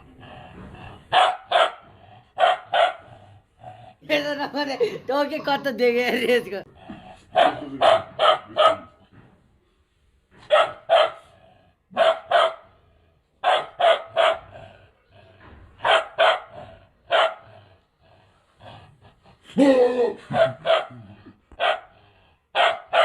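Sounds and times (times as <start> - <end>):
puppy barking: 1.1 - 1.8, 2.4 - 3.1, 7.3 - 9.0, 10.4 - 11.4, 12.0 - 12.8, 13.4 - 14.5, 15.8 - 17.5, 20.3 - 21.9, 22.6 - 23.0.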